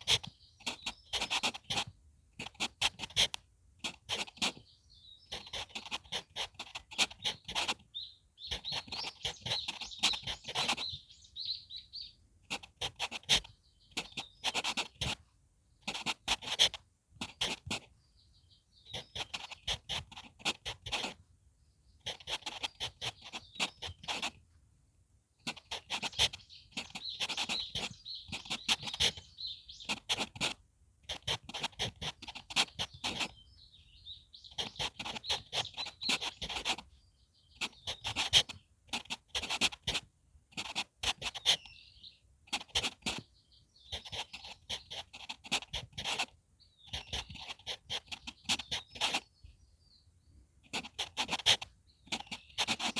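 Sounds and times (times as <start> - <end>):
birds chirping: 0.0 - 2.0, 4.1 - 16.6, 17.2 - 24.4, 25.4 - 30.5, 31.5 - 38.7, 40.7 - 52.9
pencil scratching on paper: 0.0 - 4.7, 5.3 - 7.9, 8.5 - 11.0, 12.5 - 15.2, 15.8 - 17.9, 18.9 - 21.2, 22.0 - 24.4, 25.5 - 33.4, 34.5 - 36.9, 37.6 - 41.7, 42.5 - 43.3, 43.9 - 49.3, 50.6 - 52.9.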